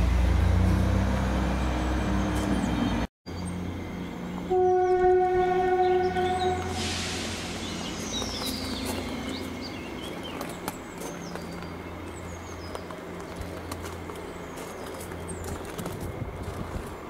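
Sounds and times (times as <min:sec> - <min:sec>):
small birds chirping: 0:07.4 - 0:15.8.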